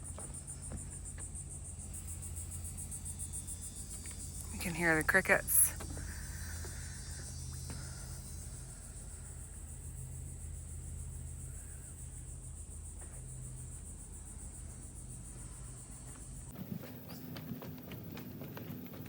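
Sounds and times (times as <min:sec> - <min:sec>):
crickets chirring: 0:00.0 - 0:19.0
low steady hum: 0:00.0 - 0:19.0.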